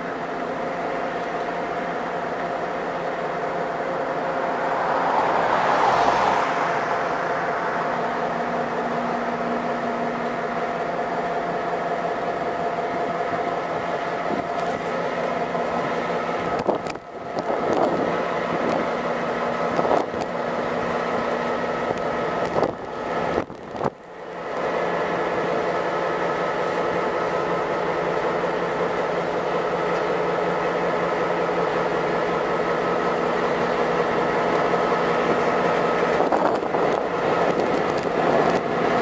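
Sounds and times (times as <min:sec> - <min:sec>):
freight train cars rolling: 0:00.0 - 0:39.0.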